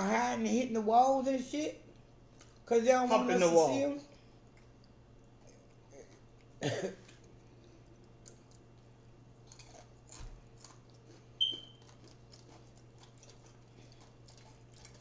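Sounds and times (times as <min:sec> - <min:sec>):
people chewing: 0:01.9 - 0:03.4, 0:04.1 - 0:15.0.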